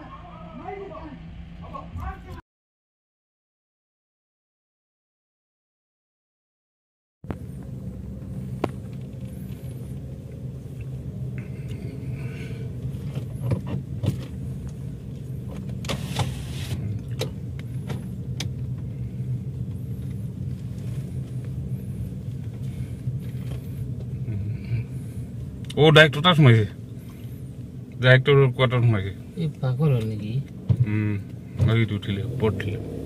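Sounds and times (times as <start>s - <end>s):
car engine running: 7.2s - 33.0s.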